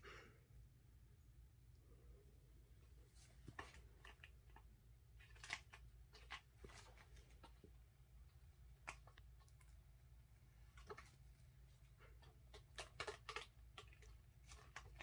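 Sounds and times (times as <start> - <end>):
low room hum: 0.0 - 15.0
kittens clicking and scraping: 3.1 - 15.0.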